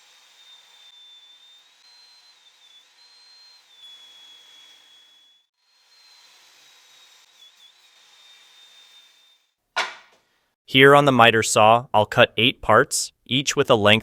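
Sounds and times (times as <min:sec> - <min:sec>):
table saw whining: 0:00.0 - 0:10.0.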